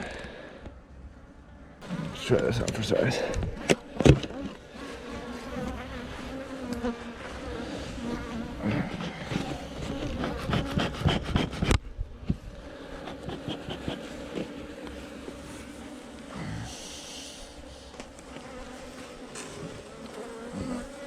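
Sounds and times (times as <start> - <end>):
bees buzzing: 1.8 - 21.0.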